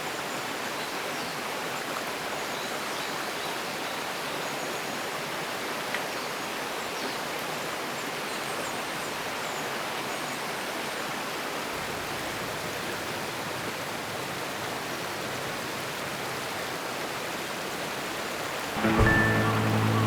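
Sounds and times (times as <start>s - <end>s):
stream rushing: 16.7s - 20.0s.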